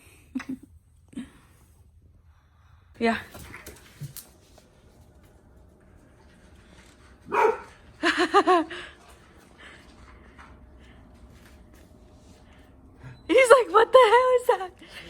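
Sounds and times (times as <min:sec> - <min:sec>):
dog barking: 0:07.3 - 0:07.8.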